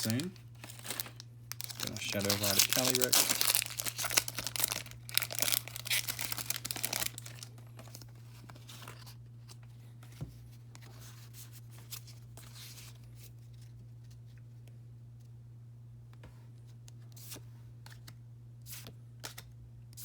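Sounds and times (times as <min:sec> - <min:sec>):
card pack packaging tearing open: 0:00.0 - 0:08.0
steady low hum: 0:00.0 - 0:20.0.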